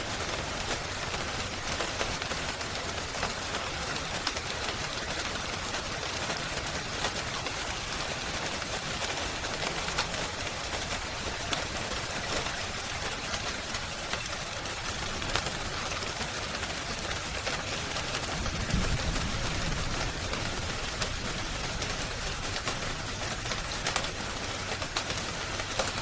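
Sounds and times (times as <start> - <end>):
rain hiss: 0.0 - 26.0
wood fire crackling: 0.0 - 26.0.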